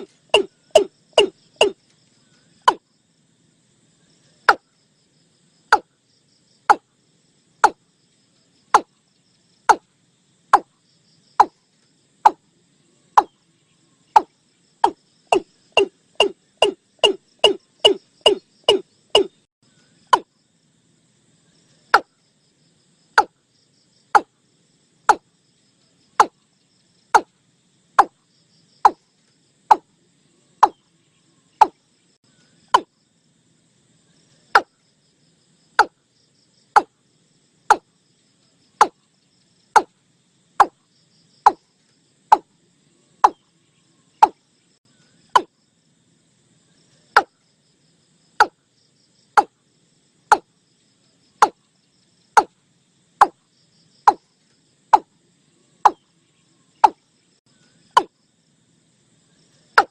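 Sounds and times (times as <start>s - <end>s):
bird calling sharp notes: 0.0s - 1.8s, 14.2s - 19.4s
insect chirring: 0.0s - 59.9s.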